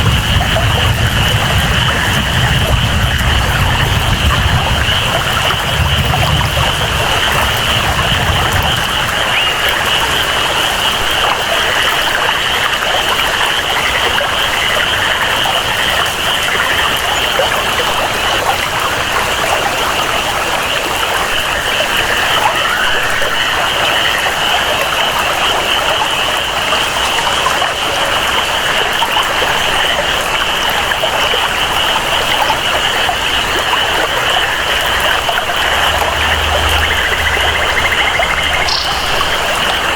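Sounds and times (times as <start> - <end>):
rain: 0.0 - 39.9
trickling water: 0.0 - 39.9
jungle chorus: 34.2 - 39.9
low rumble: 34.9 - 39.9.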